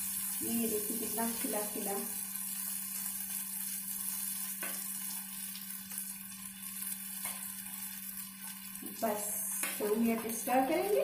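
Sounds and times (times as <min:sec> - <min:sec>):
food frying hiss: 0:00.0 - 0:11.0.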